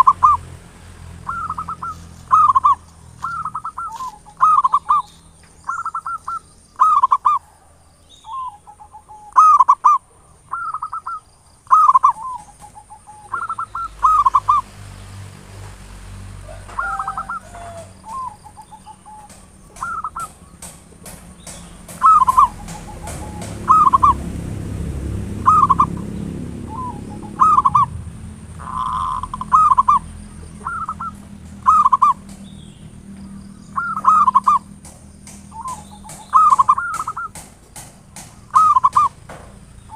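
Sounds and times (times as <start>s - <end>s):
dove cooing: 0.0s - 0.4s, 1.2s - 14.7s, 16.4s - 24.4s, 25.3s - 32.4s, 33.6s - 37.5s, 38.2s - 39.2s
low rumble: 21.3s - 35.6s.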